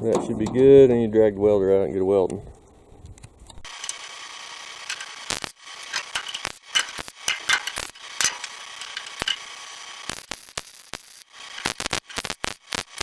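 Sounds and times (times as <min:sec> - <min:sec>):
steady hum: 0:00.0 - 0:13.0
metallic clicks and clanks: 0:04.9 - 0:05.2, 0:05.8 - 0:09.5.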